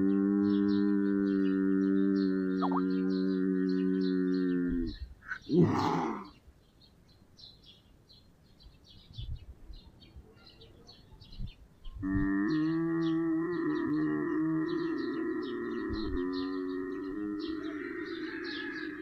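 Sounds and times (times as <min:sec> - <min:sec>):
lynx yowl: 0:00.3 - 0:06.3
faint high chirping: 0:02.2 - 0:06.4.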